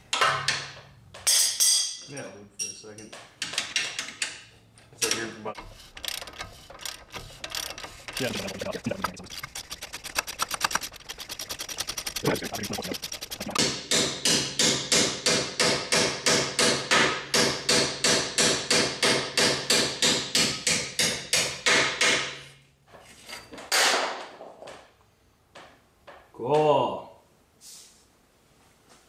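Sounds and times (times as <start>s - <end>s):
ratchet wrench clicking: 5.6s - 13.6s
hammer striking metal: 13.6s - 22.3s.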